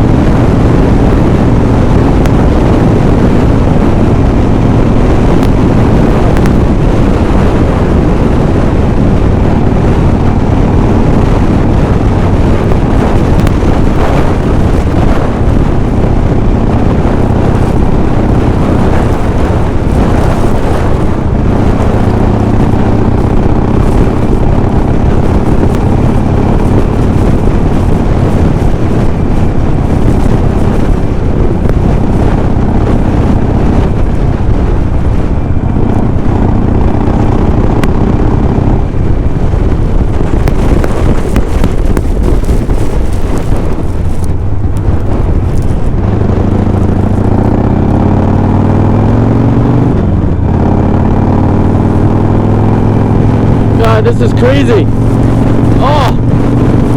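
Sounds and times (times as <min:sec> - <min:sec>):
motorcycle engine running: 0:00.0 - 0:56.9
wind buffeting microphone: 0:00.0 - 0:56.9.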